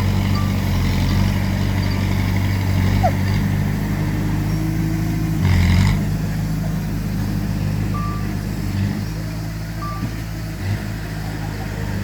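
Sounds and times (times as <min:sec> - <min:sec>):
heavy diesel engine running: 0:00.0 - 0:12.0
reversing alarm beep: 0:07.9 - 0:08.4, 0:09.8 - 0:10.1.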